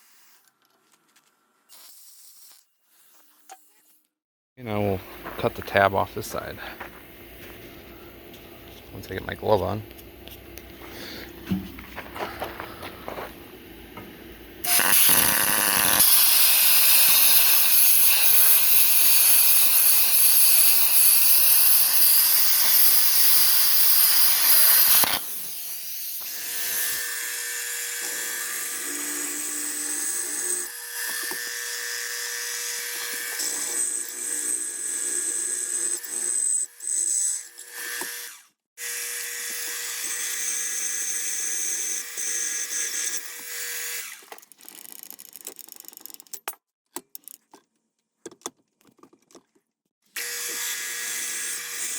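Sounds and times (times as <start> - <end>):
power tool cutting steel: 14.6 - 44.4, 50.2 - 51.9.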